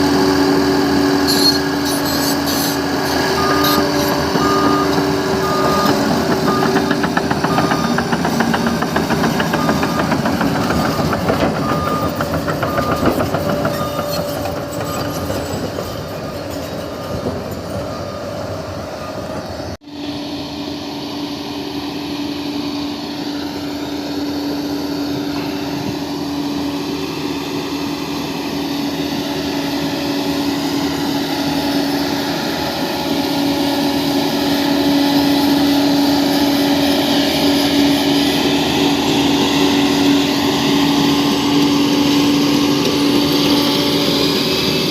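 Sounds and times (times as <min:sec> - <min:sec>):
bulldozer diesel engine under load: 0:00.0 - 0:44.9
steel tracks clanking and rattling: 0:01.2 - 0:19.7.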